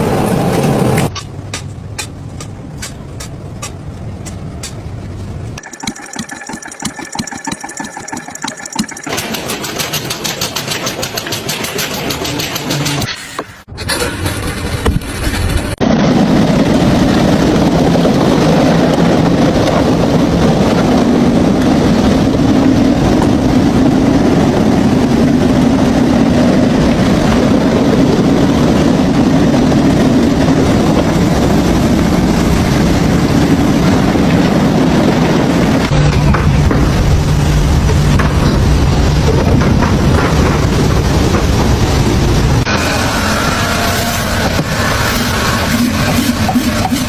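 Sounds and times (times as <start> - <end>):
machine engine humming: 5.6 - 13.1.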